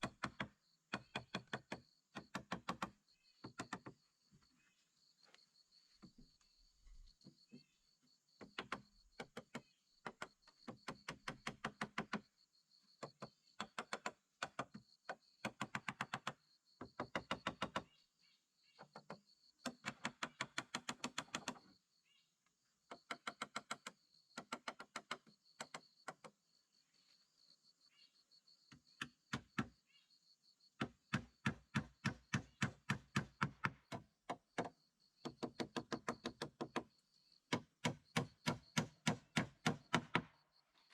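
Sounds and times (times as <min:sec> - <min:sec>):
hand tool knocking on wood: 0:30.8 - 0:36.9, 0:37.5 - 0:40.3.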